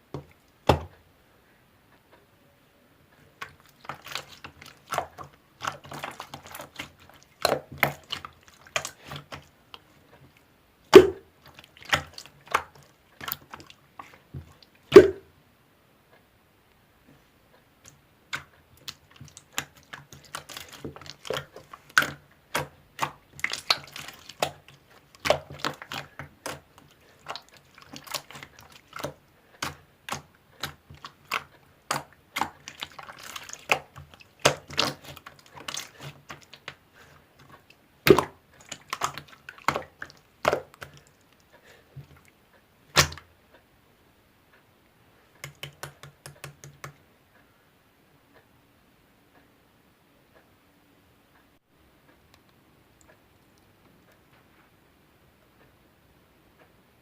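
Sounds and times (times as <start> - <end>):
air-bubble pops: 10.9 - 11.2, 14.9 - 15.3.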